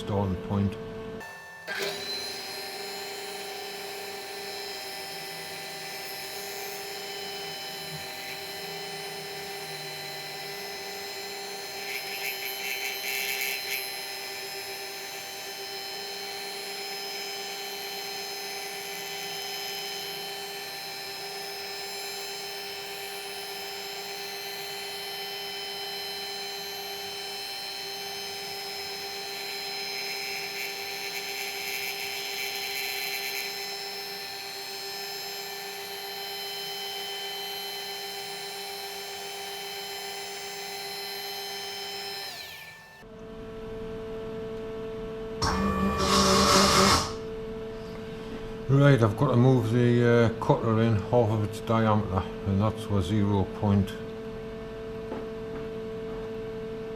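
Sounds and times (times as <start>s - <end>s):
milling machine cutting brass: 1.2s - 43.0s, 45.4s - 47.2s.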